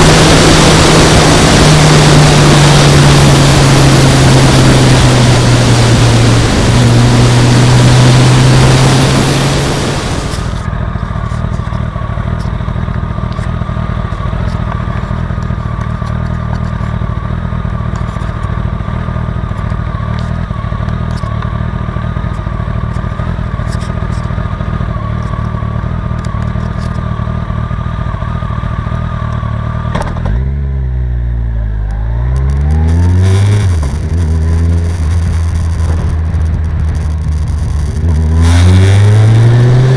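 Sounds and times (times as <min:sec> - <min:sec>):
heavy wind noise: 0:00.0 - 0:10.7, 0:33.3 - 0:38.2
motorcycle engine revving: 0:00.0 - 0:39.9.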